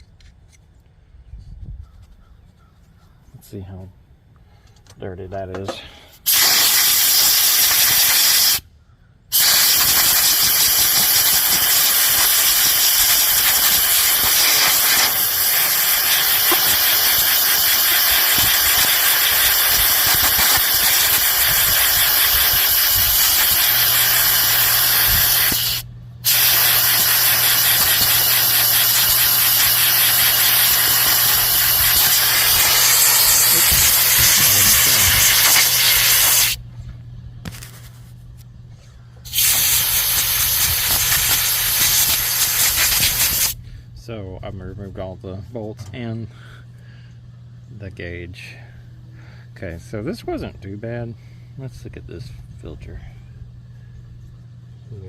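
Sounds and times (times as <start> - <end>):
air blow gun hissing: 6.2 - 8.6, 9.3 - 36.6, 39.3 - 43.6
low steady hum: 10.4 - 55.0.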